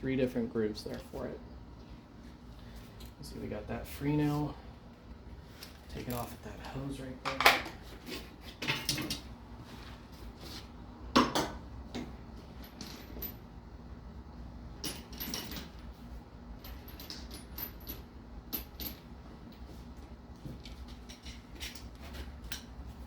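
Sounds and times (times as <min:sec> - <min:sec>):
low steady hum: 0:00.0 - 0:23.0
metal tools clinking and clattering: 0:05.6 - 0:09.3.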